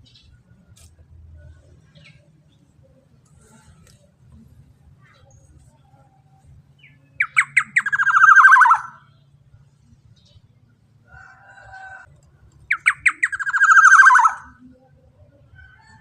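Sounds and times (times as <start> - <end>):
oriole calling: 7.2 - 9.0, 12.7 - 14.6
harsh buzzy bird call: 7.2 - 9.1, 12.7 - 14.6.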